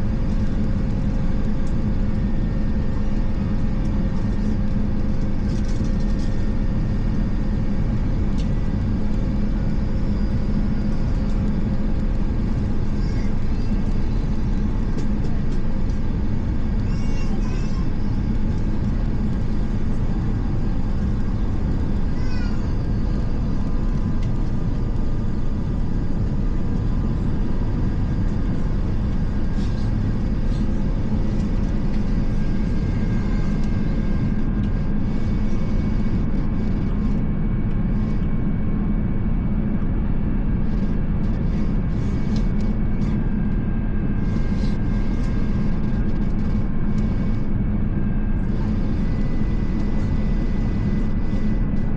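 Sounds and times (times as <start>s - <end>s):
jet engines droning: 0.0s - 39.4s
constant low hum: 0.0s - 51.9s.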